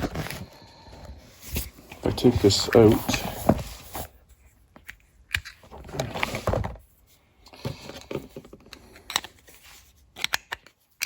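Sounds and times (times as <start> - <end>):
small parts clicking and knocking: 7.8 - 11.0.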